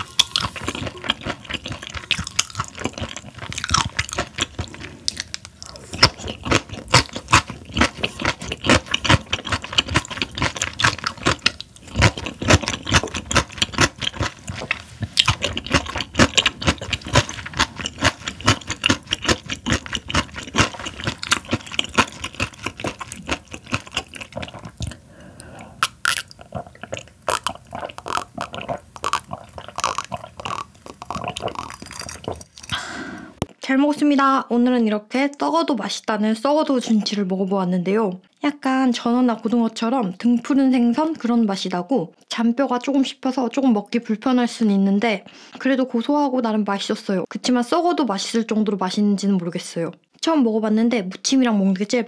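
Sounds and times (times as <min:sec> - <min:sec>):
chewing mouth clicks: 0:00.0 - 0:32.8.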